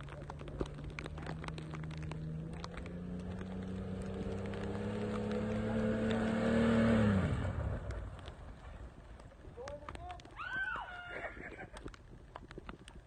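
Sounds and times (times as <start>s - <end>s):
motorcycle engine accelerating: 0.0s - 8.6s
light ticks: 11.4s - 13.0s.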